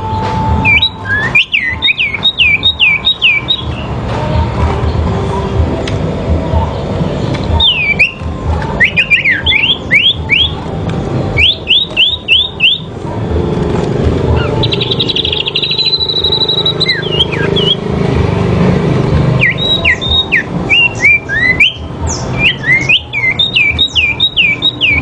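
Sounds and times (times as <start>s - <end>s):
songbirds singing: 0.0s - 25.0s
steady low rumble: 12.5s - 19.3s.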